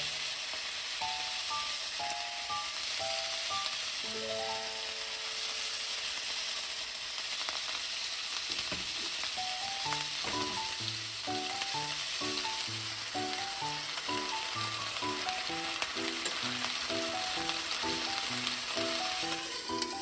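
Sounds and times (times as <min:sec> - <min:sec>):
chicken sizzling in hot oil: 0:00.0 - 0:20.0
light melodic background tune: 0:01.0 - 0:05.4, 0:09.4 - 0:20.0.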